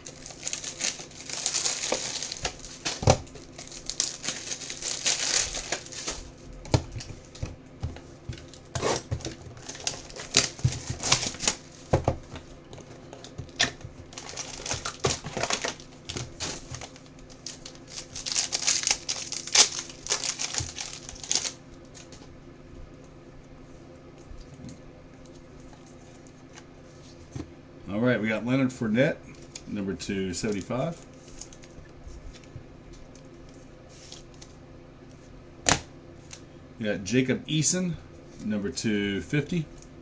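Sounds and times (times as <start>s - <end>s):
plastic wrapping crinkling and tearing: 0.0s - 7.5s, 8.4s - 12.4s, 13.2s - 22.2s, 30.4s - 32.5s.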